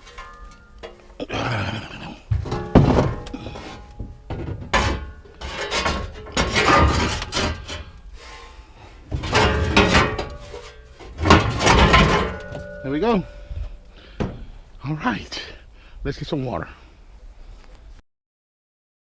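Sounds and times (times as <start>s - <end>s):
scrap metal clanking and scraping: 0.0s - 14.6s.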